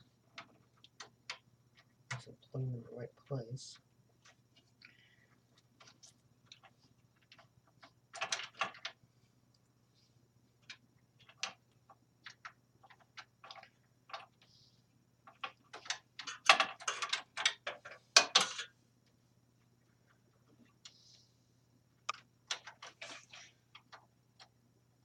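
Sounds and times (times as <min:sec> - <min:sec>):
faint low hum: 0:00.0 - 0:25.0
computer parts clicking and rattling: 0:00.2 - 0:04.8, 0:05.5 - 0:09.0, 0:10.6 - 0:14.6, 0:15.2 - 0:18.8, 0:22.1 - 0:24.6.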